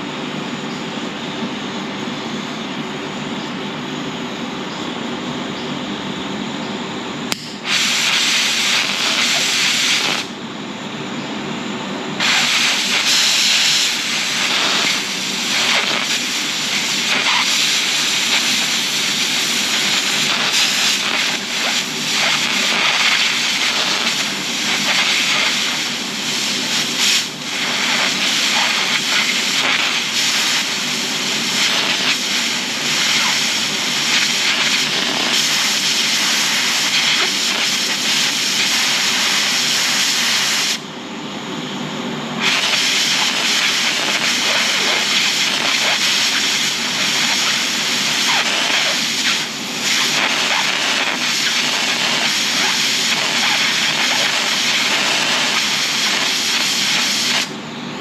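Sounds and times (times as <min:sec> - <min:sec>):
welder humming: 0:07.3 - 0:10.4, 0:12.2 - 0:40.9, 0:42.4 - 0:57.6
welding arc crackling: 0:07.3 - 0:10.4, 0:12.2 - 0:40.8, 0:42.4 - 0:57.6.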